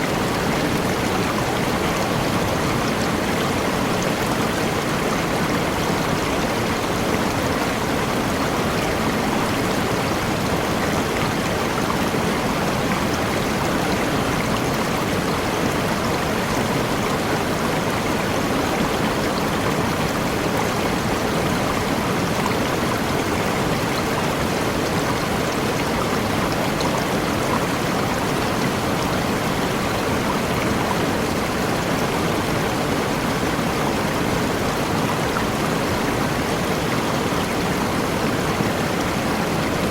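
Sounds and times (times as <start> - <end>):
waterfall and stream rushing: 0.0 - 39.9.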